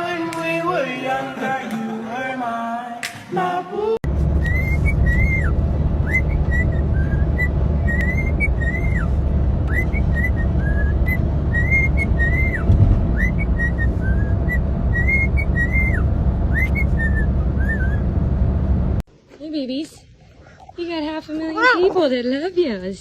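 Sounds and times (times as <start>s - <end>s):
steady low hum: 4.1s - 19.0s.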